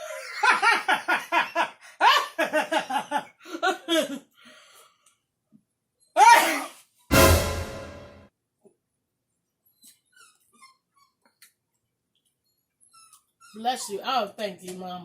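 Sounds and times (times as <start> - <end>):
loud vocal outburst: 6.2 - 6.8.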